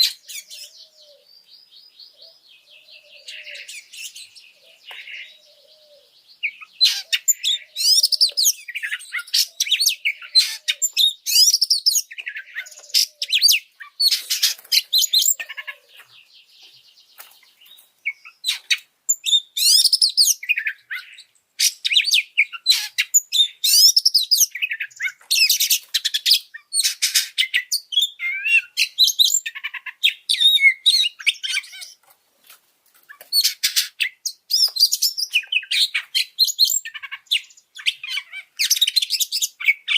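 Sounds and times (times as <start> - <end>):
bird singing fast varied song: 0.0 - 32.0, 33.1 - 39.9.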